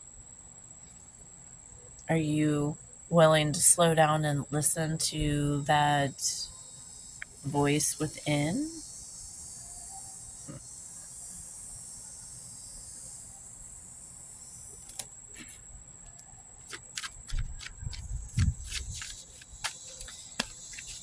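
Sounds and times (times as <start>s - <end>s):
crickets chirring: 0.0s - 21.0s
soft low thumps: 17.2s - 19.7s.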